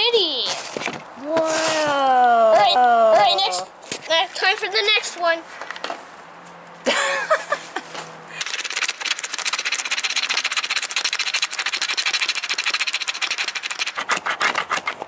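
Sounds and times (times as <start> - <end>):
scratching scratch-off panel: 7.9 - 15.0.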